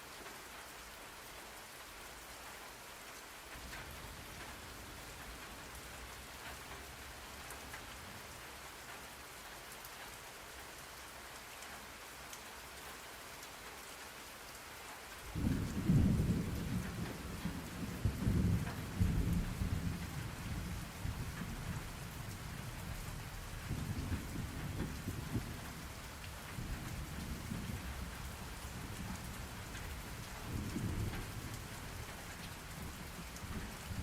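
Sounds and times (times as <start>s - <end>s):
steady rain falling: 0.0s - 34.0s
thunder rumbling: 15.3s - 22.8s, 23.4s - 34.0s.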